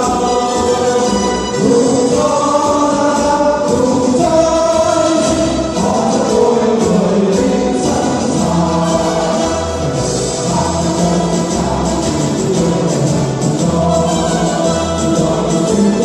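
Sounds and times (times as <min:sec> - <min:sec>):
choir singing long notes: 0:00.0 - 0:16.0.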